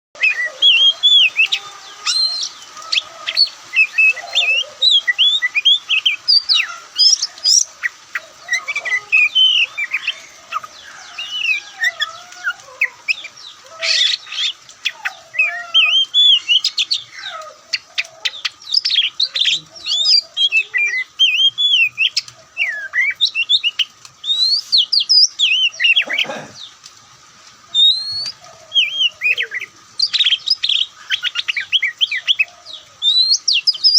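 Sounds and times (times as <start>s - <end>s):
bird singing whistled song: 18.8s - 26.0s, 27.8s - 32.4s, 33.0s - 33.9s.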